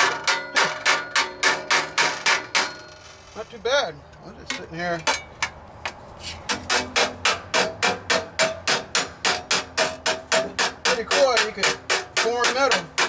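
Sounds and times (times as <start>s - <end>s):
hammer striking sheet steel: 0.0s - 3.2s, 6.5s - 13.0s.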